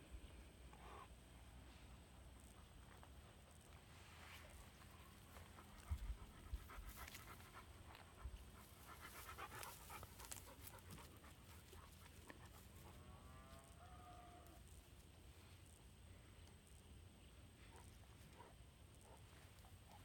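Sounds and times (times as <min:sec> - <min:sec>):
dog panting: 0:04.6 - 0:13.0.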